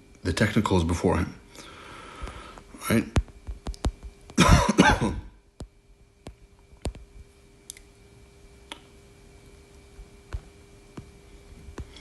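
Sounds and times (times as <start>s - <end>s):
faint electrical hum: 0.0s - 12.0s
faint clicks and taps: 2.6s - 4.4s, 5.6s - 7.1s.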